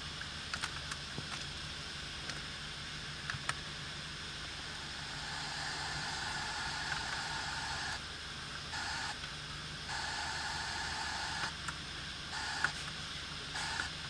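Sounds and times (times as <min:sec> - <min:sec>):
high hiss: 0:04.8 - 0:08.0.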